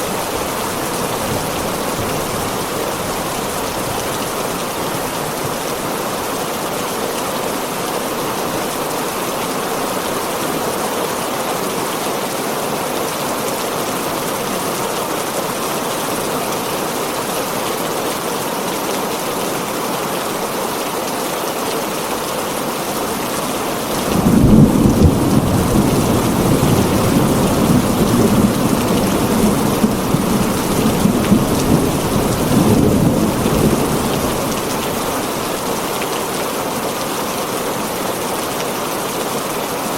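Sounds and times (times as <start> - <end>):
heavy rain on a tin roof: 0.0 - 39.9
thunder rumbling: 23.9 - 35.6.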